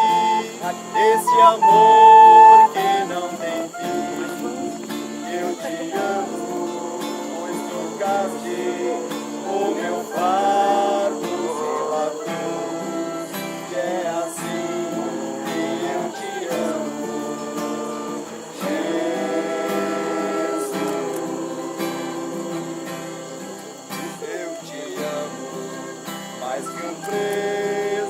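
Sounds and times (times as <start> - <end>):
acoustic guitar strumming: 0.0 - 28.0
group of voices singing: 0.0 - 28.0.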